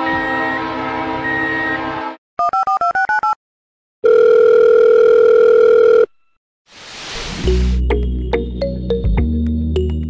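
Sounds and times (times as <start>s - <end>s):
train horn: 0.0s - 2.2s
phone ringing tone: 4.0s - 6.1s.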